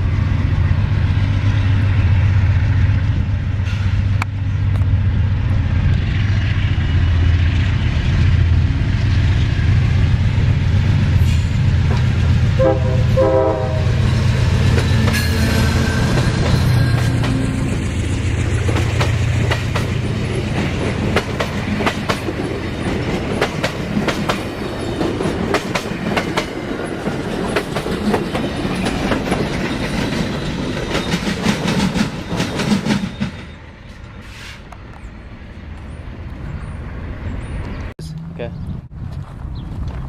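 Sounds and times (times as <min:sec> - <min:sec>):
train engine drone: 0:00.0 - 0:40.0
train wheels clicking over rail joints: 0:14.2 - 0:34.8.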